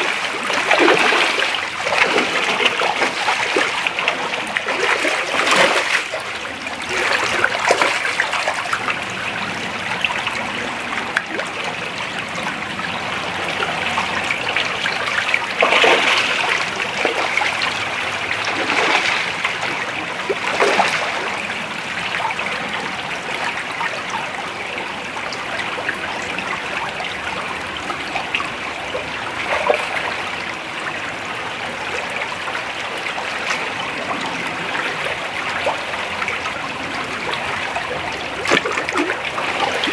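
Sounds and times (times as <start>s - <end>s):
creek water flowing over rocks: 0.0s - 39.9s
water splashes: 0.0s - 39.9s.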